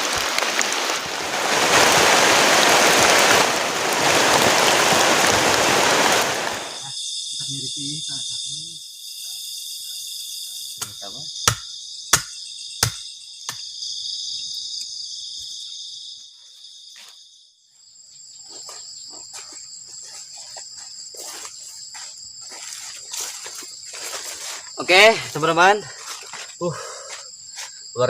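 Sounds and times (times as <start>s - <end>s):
forest insects chorus: 0.0s - 28.0s
sharp knocks: 10.8s - 13.6s.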